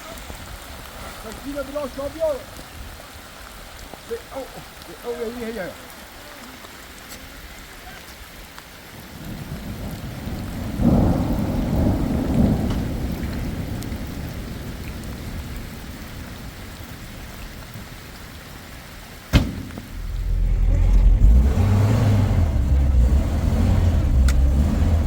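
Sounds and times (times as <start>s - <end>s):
steady rainfall: 0.0s - 25.0s
thunder rumbling: 9.1s - 18.2s, 19.1s - 25.0s.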